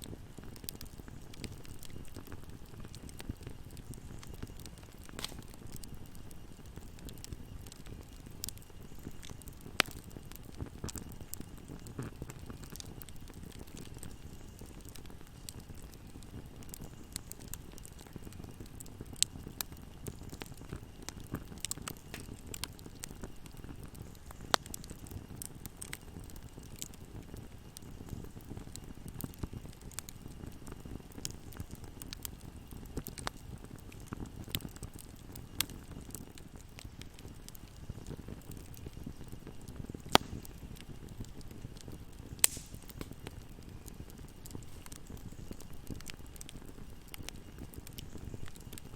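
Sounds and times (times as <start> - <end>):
wood fire crackling: 0.0 - 48.9
wood popping: 3.7 - 5.9, 21.4 - 23.1, 40.1 - 40.6, 42.3 - 47.3.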